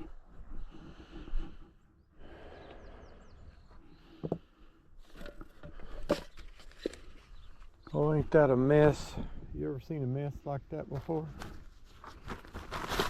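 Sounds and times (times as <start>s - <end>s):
rustling in dry leaves: 12.0s - 13.0s.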